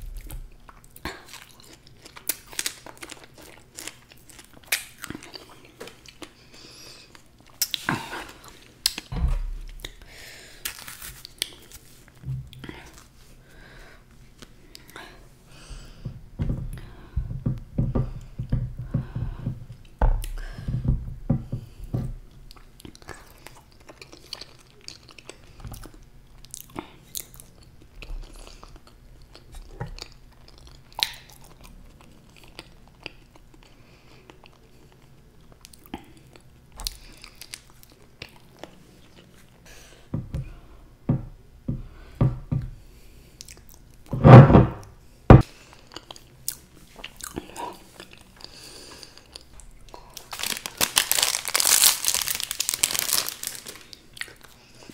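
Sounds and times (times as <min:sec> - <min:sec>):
chewing soft food: 0:00.2 - 0:09.1, 0:22.5 - 0:39.6, 0:45.5 - 0:54.9.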